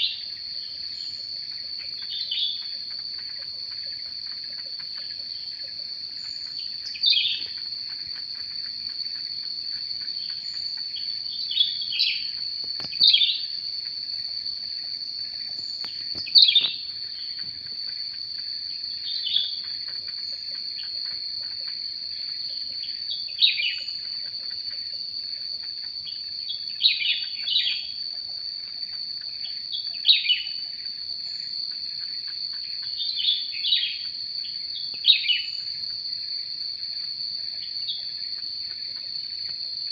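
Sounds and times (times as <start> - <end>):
high-pitched insect drone: 0.0 - 39.9
bird chirps falling: 15.6 - 16.9.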